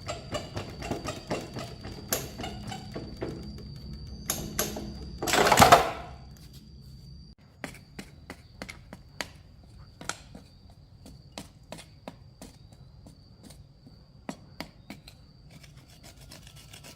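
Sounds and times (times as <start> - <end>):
hand tools and metal parts clicking: 0.0 - 6.6
faint high whine: 0.0 - 12.0.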